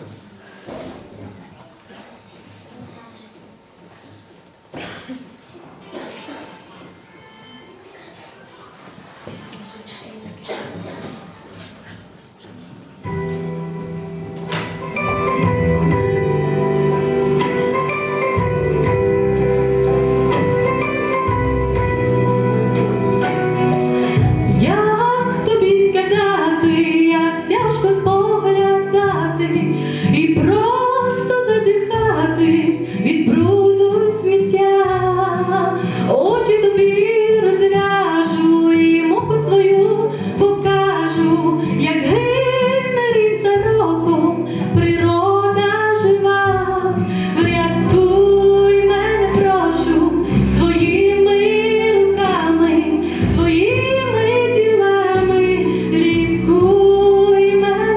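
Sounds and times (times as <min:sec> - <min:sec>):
instrumental accompaniment: 0:13.0 - 0:57.9
woman singing: 0:24.4 - 0:57.9.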